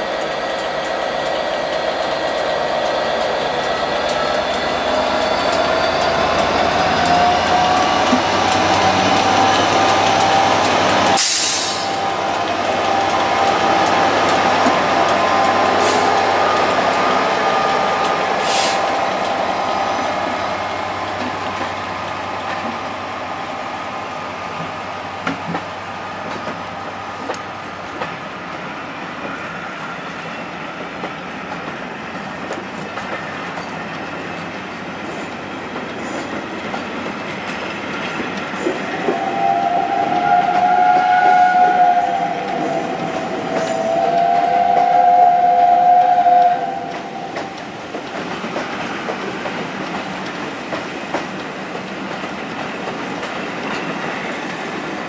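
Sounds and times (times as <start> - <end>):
passenger train rolling past: 0.0 - 55.0
train whistle: 3.6 - 20.5, 38.6 - 47.7.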